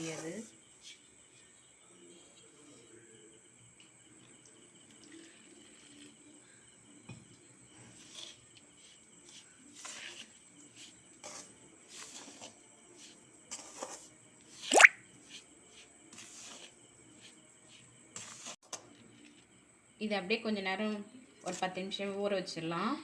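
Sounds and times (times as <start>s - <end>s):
ladle scraping dough in a vessel: 7.8s - 19.0s.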